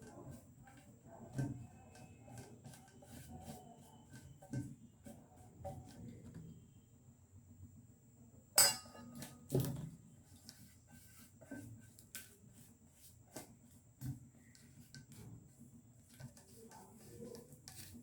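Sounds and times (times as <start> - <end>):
kitchen utensils and dishes clinking: 8.6 - 9.4.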